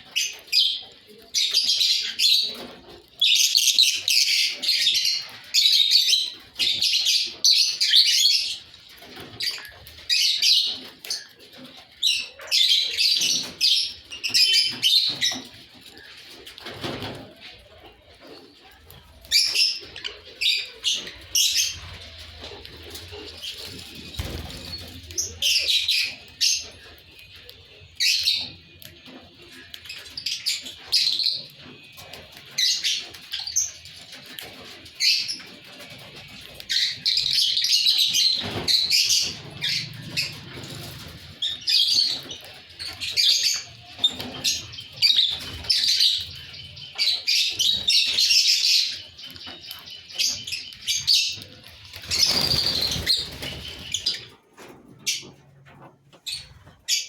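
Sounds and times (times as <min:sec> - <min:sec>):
lovebirds chirping: 0:18.1 - 0:54.4.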